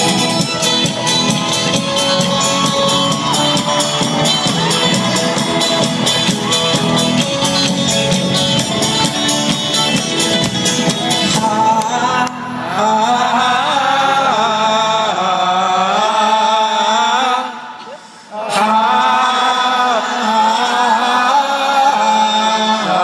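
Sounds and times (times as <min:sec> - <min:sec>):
folk-rock band playing live: 0:00.0 - 0:12.8.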